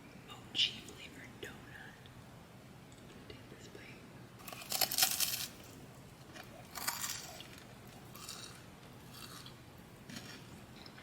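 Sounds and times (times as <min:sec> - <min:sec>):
crunchy bites and chewing: 0:04.4 - 0:11.0.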